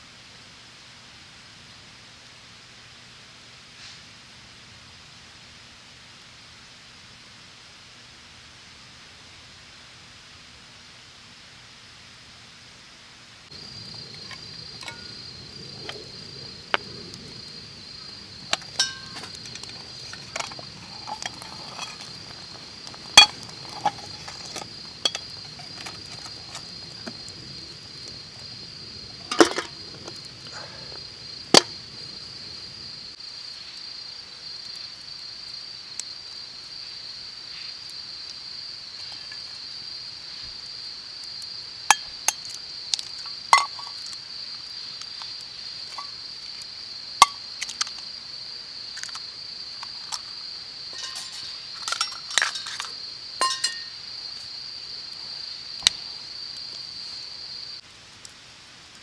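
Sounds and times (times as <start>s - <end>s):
high-pitched insect chorus: 13.5s - 57.8s
metal cookware clinking: 13.6s - 16.0s, 18.0s - 28.4s, 29.0s - 32.2s, 50.9s - 54.0s.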